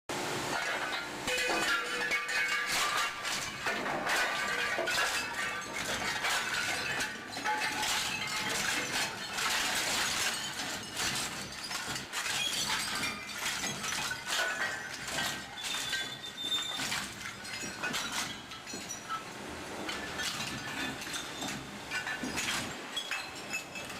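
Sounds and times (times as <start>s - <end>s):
shredder cracking and breaking metal: 0.5s - 19.2s, 19.9s - 23.9s
metal scraping squeals: 14.4s - 17.2s.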